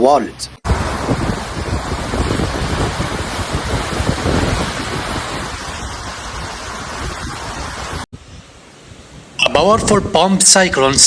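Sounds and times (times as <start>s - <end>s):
wind gusts buffeting microphone: 0.6s - 10.8s
heavy rain hiss: 0.7s - 9.4s.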